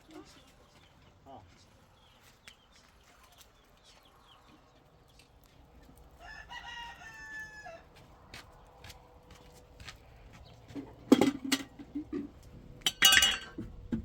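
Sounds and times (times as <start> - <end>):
rooster crowing: 6.2 - 8.0.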